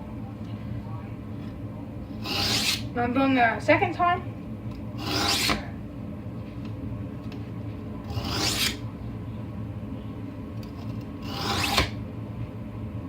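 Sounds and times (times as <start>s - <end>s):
low steady hum: 0.0s - 13.0s
knife grinding on whetstone: 2.2s - 2.9s, 5.0s - 5.6s, 8.1s - 8.8s, 11.2s - 11.9s.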